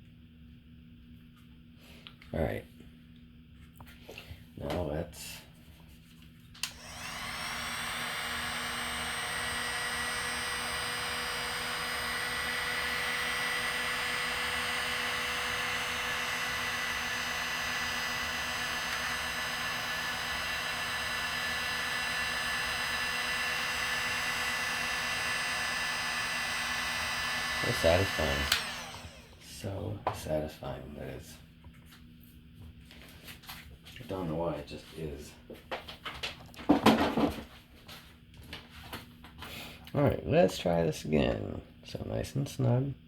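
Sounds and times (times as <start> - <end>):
hot-air blower running: 6.6 - 30.2.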